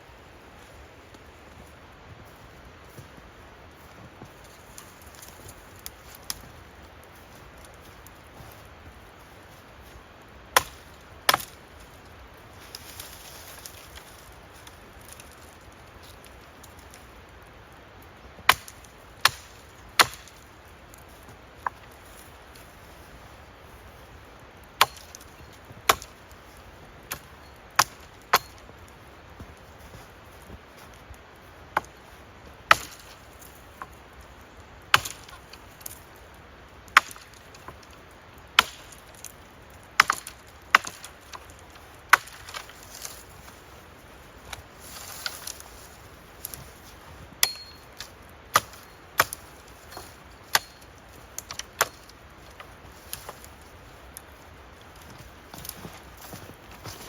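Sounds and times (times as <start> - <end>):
wood being chopped by hand: 10.5 - 11.6, 18.4 - 20.4, 24.8 - 26.2, 27.1 - 28.6, 32.7 - 33.2, 34.9 - 35.5, 36.9 - 37.8, 38.6 - 39.3, 40.0 - 41.4, 42.1 - 43.2, 47.4 - 53.5.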